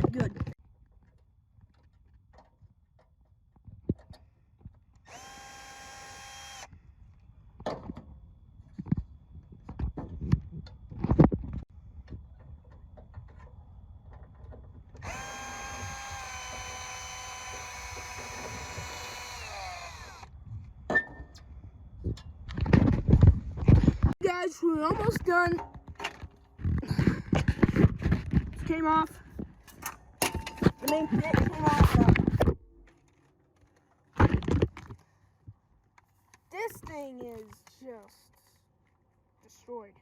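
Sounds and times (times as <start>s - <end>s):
power drill whining: 5.0s - 6.7s, 15.0s - 20.3s
handling knocks and clatter: 24.9s - 35.1s.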